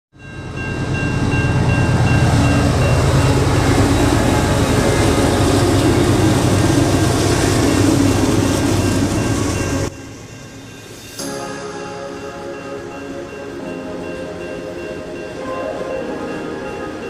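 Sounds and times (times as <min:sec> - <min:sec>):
train rumble: 0:00.2 - 0:17.0
low engine drone: 0:00.8 - 0:10.3.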